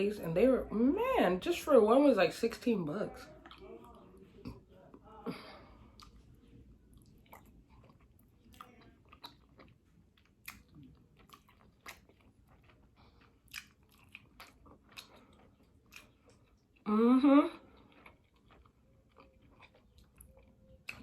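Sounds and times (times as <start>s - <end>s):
soft chewing: 3.1s - 21.0s
crisp crunches of eating: 5.9s - 16.9s, 17.5s - 21.0s.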